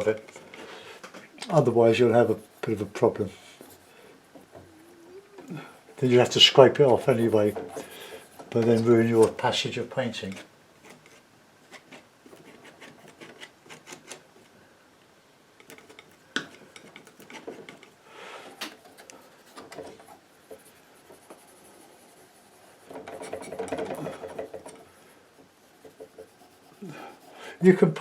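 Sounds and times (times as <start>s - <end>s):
palette knife scraping paint: 1.5s - 3.9s, 5.9s - 9.6s, 10.2s - 14.2s, 18.9s - 25.0s, 25.6s - 27.4s.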